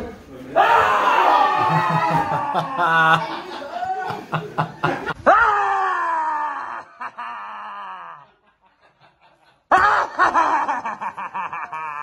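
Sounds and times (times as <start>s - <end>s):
long scream: 0.6s - 3.0s.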